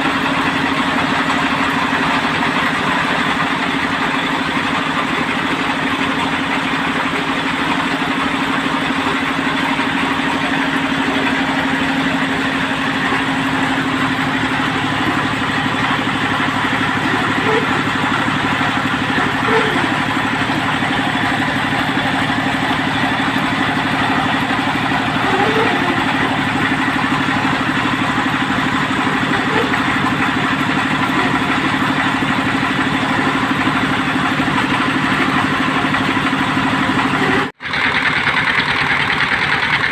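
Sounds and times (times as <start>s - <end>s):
drilling machine engine running: 0.0s - 39.9s.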